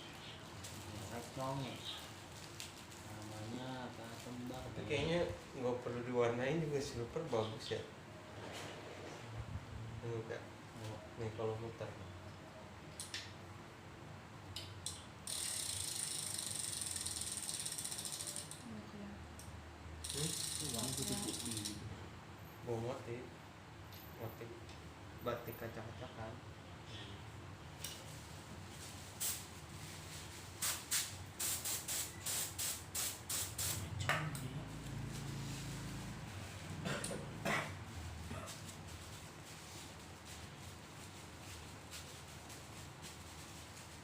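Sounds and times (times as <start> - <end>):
wheel hub ratchet clicking: 14.8 - 18.6, 20.0 - 21.8
spray paint hissing in bursts: 15.3 - 18.5, 29.2 - 29.5, 30.5 - 34.0
steady low hum: 33.7 - 42.6.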